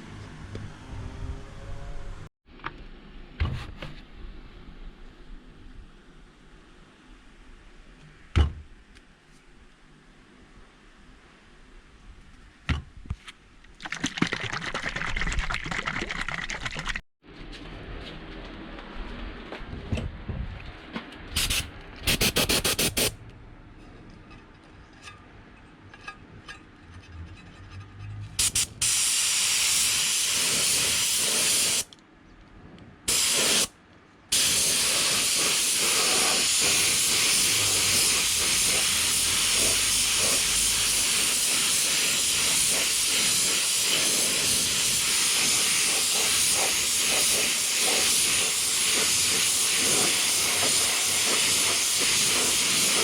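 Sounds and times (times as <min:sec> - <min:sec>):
spray paint hissing: 0:21.4 - 0:23.2, 0:28.4 - 0:31.9, 0:33.1 - 0:33.7, 0:34.3 - 0:53.0.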